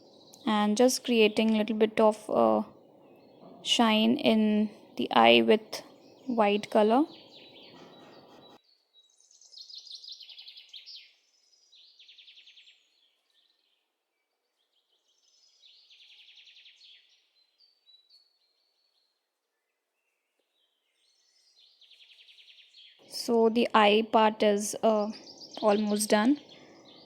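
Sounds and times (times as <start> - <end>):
songbird trilling: 5.8 - 13.6, 20.6 - 27.0.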